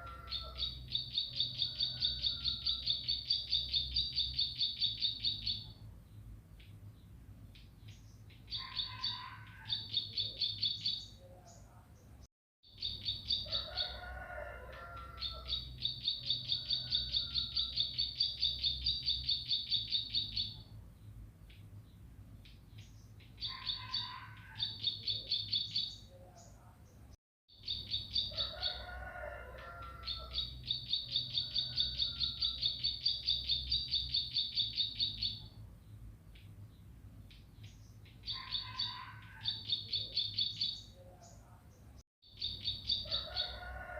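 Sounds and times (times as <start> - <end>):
bird singing rapid trills: 0.0 - 11.2, 12.7 - 13.6, 15.2 - 21.7, 27.5 - 28.8, 30.0 - 41.0, 42.2 - 43.6.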